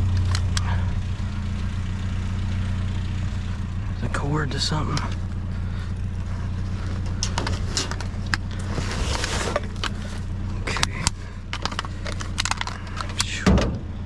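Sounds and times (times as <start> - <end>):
vehicle engine idling: 0.0 - 14.0
trash rummaging rattles and rustles: 6.1 - 13.8.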